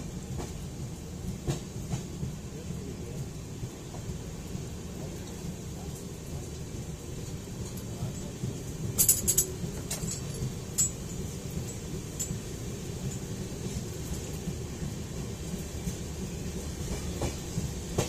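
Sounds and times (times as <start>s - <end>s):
train rumbling: 0.0s - 18.0s
sharp metallic clinks: 9.0s - 12.4s.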